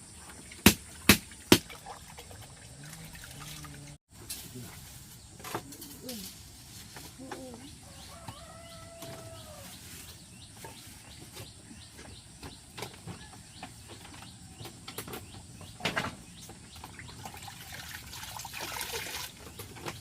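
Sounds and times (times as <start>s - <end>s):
small birds chirping: 2.6s - 17.6s.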